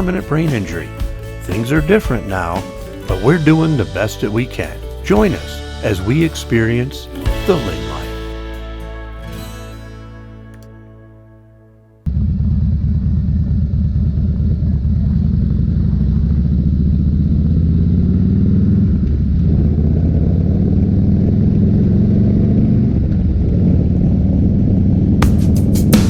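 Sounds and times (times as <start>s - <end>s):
intro music: 0.0s - 12.0s, 25.2s - 26.0s
motorcycle engine running: 12.1s - 26.0s.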